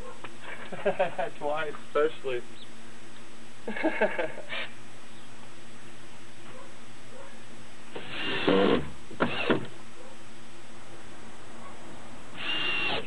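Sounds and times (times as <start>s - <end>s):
screw gun driving screws: 8.0s - 9.7s, 12.4s - 13.0s.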